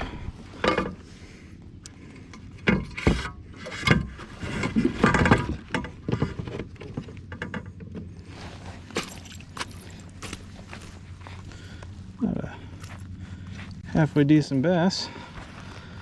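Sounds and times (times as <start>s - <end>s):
water splashing: 8.8s - 10.4s.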